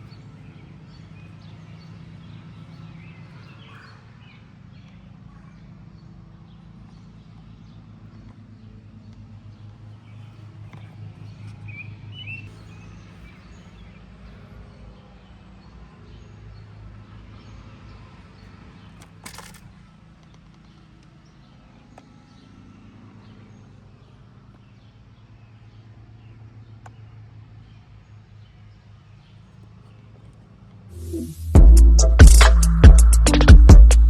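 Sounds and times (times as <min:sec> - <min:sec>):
sharp rustle or click: 0:19.0 - 0:20.8.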